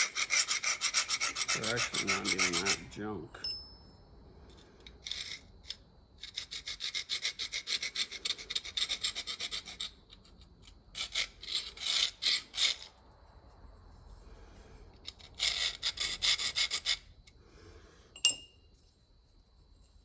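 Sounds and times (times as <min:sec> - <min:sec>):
hand tool rasping on workpiece: 0:00.0 - 0:02.9, 0:06.2 - 0:10.3, 0:15.0 - 0:17.1.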